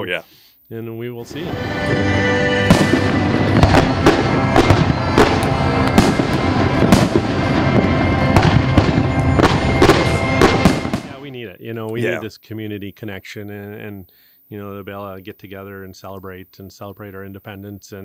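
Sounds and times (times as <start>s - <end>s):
background music: 1.2s - 12.3s
fireworks bangs and crackles: 2.6s - 11.3s.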